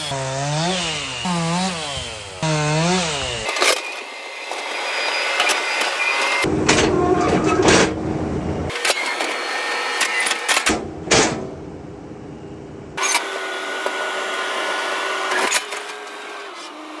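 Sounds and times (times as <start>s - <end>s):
machinery drone: 6.1s - 8.8s, 10.7s - 13.1s.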